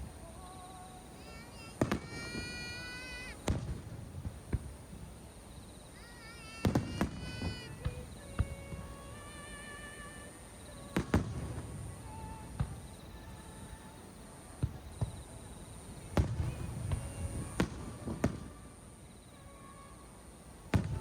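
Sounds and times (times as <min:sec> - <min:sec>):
fireworks bangs with rumbling echo: 0:01.2 - 0:09.2, 0:10.6 - 0:13.8, 0:14.6 - 0:19.2, 0:20.7 - 0:21.0.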